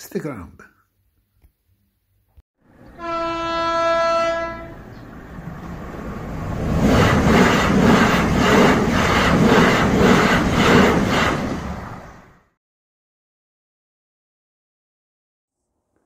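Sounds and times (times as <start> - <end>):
train horn: 2.9 - 4.9.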